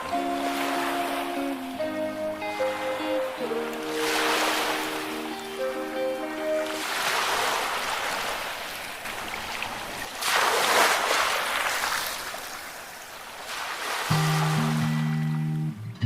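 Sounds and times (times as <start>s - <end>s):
music: 0.0s - 6.9s, 14.1s - 16.0s
sea waves breaking on shore: 0.0s - 15.3s.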